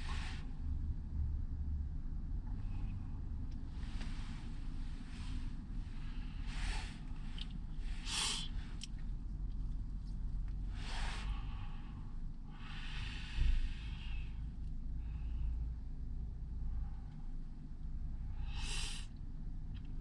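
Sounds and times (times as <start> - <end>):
steady low rumble: 0.0 - 20.0
person exhaling breathily: 8.0 - 8.6, 10.8 - 14.4, 18.4 - 19.1.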